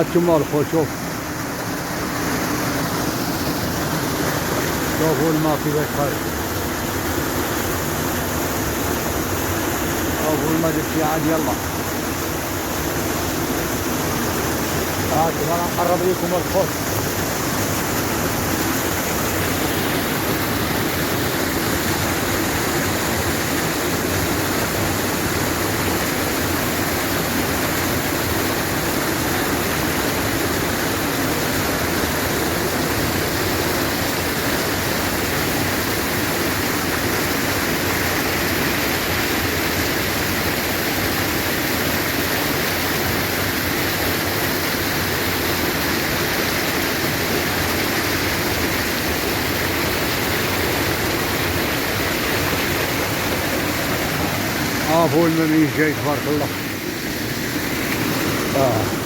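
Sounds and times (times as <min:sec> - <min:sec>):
spring water gushing: 0:00.0 - 0:59.0.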